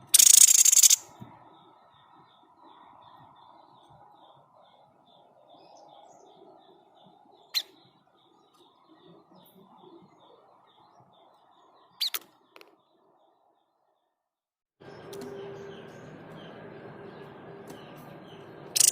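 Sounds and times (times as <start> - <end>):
faint high chirps: 0.0 - 5.8, 14.8 - 18.9.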